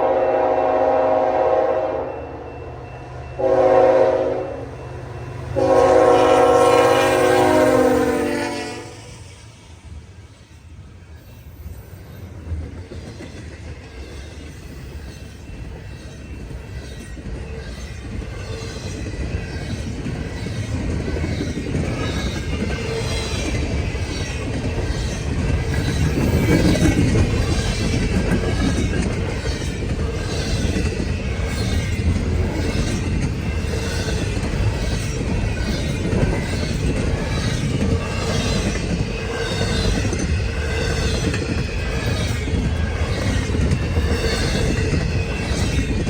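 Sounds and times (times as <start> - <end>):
freight train rumble: 0.0 - 46.0
train wheels clicking over rail joints: 11.4 - 46.0.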